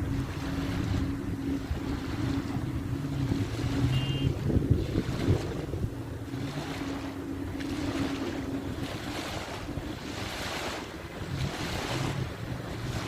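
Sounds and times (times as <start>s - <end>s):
low hum: 0.0s - 13.0s
waves washing on beach: 0.0s - 13.0s
wind buffeting microphone: 0.0s - 13.0s.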